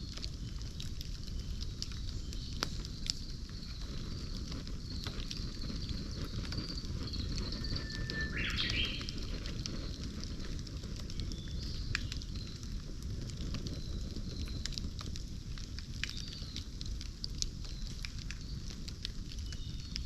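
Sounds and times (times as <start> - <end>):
campfire crackling and popping: 0.0 - 20.0
bird call: 7.5 - 9.2.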